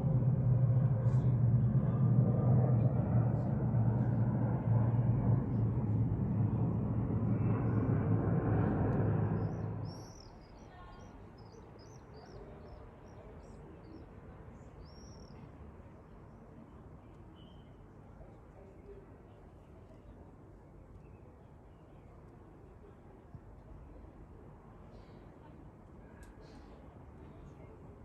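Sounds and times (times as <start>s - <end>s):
jet engine rumble: 0.0s - 10.6s
small birds chirping: 9.3s - 14.1s, 14.8s - 15.4s.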